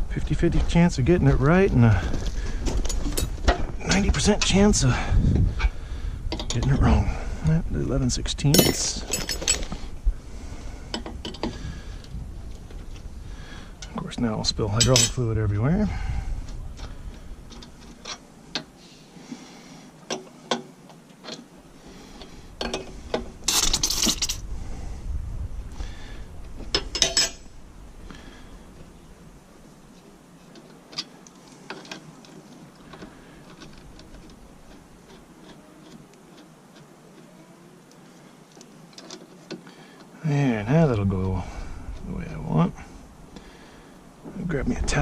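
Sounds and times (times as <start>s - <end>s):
wrench clinking on metal fittings: 8.5s - 9.7s, 14.8s - 15.2s, 23.5s - 24.4s, 26.7s - 27.5s.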